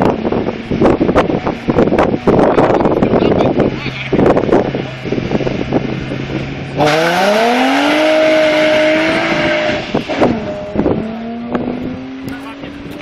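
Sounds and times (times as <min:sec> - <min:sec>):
car engine idling: 0:00.0 - 0:13.0
car engine revving: 0:00.0 - 0:13.0.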